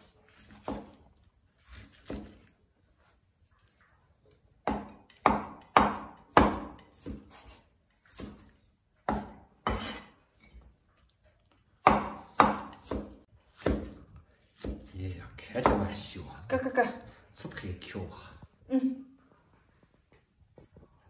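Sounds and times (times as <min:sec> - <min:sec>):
cleaver chopping on wooden board: 0:04.6 - 0:07.5, 0:09.0 - 0:10.0, 0:11.8 - 0:14.0, 0:14.6 - 0:14.9.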